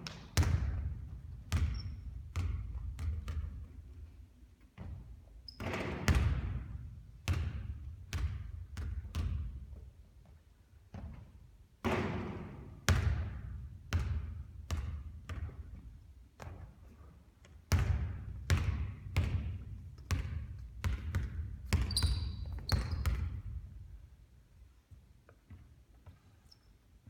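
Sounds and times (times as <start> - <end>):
basketball bouncing on court floor: 0.0 - 4.1, 4.8 - 9.9, 10.9 - 16.7, 17.4 - 23.9
high squeak: 21.9 - 23.1.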